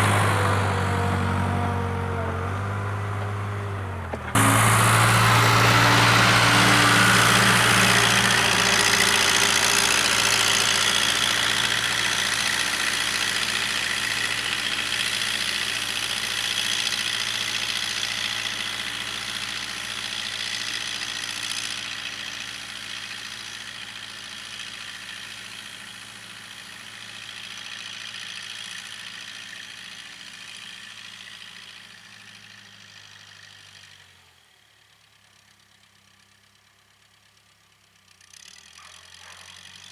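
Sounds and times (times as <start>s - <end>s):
diesel engine running: 0.0s - 27.7s.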